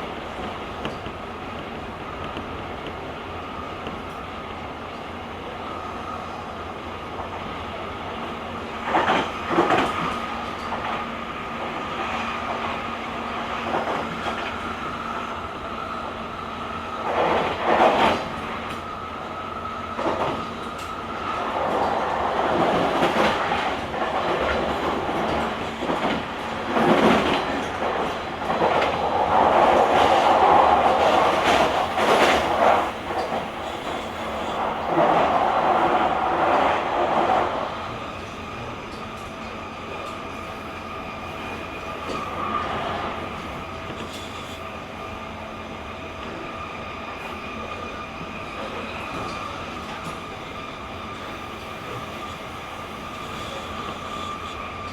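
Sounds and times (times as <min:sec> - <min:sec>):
train running rumble: 0:00.0 - 0:54.9.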